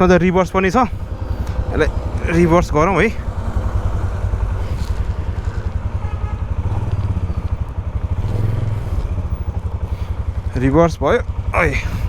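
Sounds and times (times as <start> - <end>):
atv engine idling: 0.0 - 12.0.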